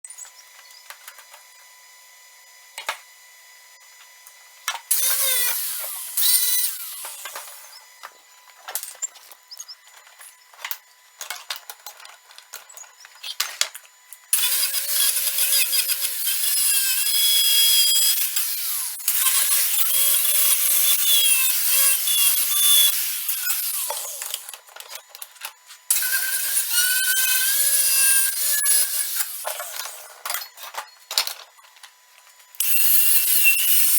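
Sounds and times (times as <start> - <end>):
power tool running under load: 4.9 - 8.1, 14.3 - 24.8, 25.9 - 30.3, 32.6 - 33.9.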